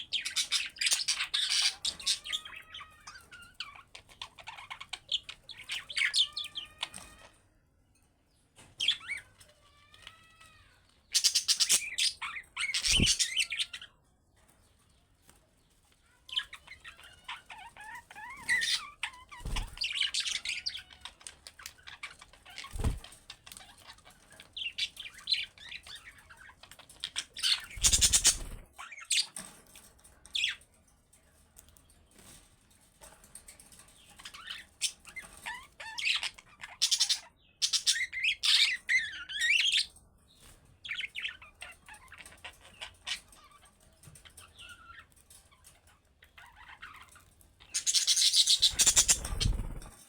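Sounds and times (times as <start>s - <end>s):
budgerigars chirping: 11.2s - 13.9s, 17.8s - 20.9s, 27.1s - 28.6s, 46.4s - 49.9s.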